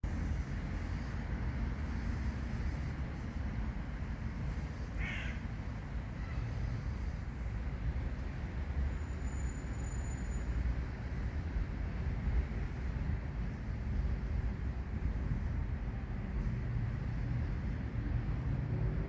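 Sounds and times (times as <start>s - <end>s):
low outdoor rumble: 0.0s - 9.2s, 10.4s - 19.0s
bird cawing: 5.0s - 5.4s.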